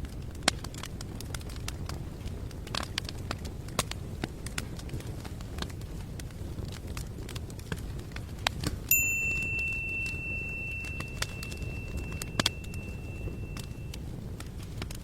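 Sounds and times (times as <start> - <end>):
low background hiss: 8.8 - 14.5
struck object ringing tone: 8.9 - 14.0.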